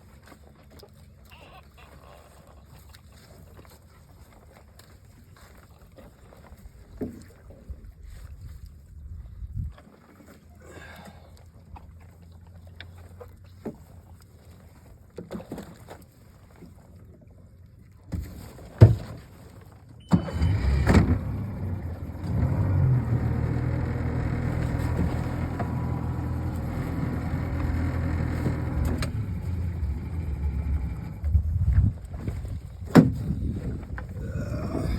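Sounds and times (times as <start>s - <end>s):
boat motor running: 20.0s - 34.9s.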